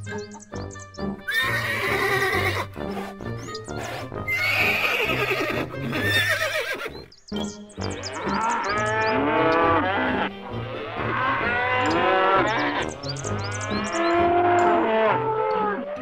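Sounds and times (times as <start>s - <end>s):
background music: 0.0s - 16.0s
farm animal calling: 0.0s - 16.0s
horse neighing: 1.3s - 3.2s, 3.8s - 7.0s.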